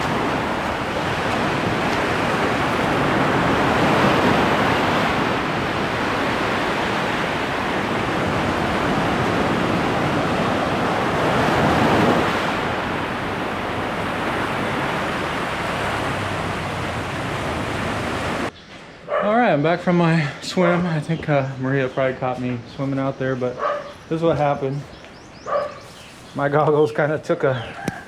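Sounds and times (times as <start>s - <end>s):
ocean surf washing in: 0.0s - 18.5s
wind rumbling on microphone: 0.0s - 18.5s.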